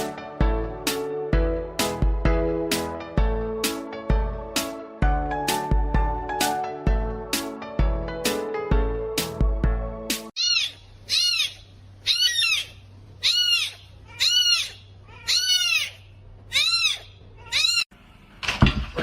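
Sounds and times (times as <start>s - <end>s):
animal high-pitched calls: 10.4s - 17.9s.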